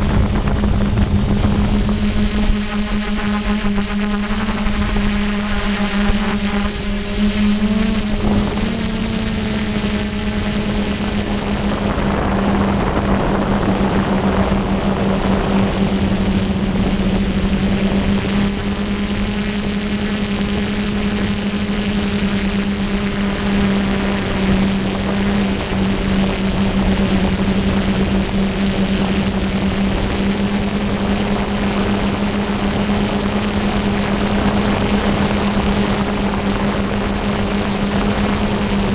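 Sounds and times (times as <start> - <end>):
wind rushing over microphone: 0.0 - 19.7
drone motors and propellers: 0.0 - 38.9.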